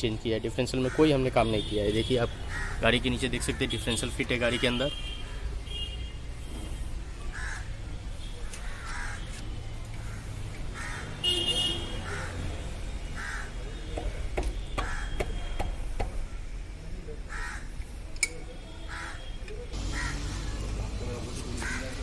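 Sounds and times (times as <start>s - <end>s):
metal clicks and taps: 18.2s - 18.4s.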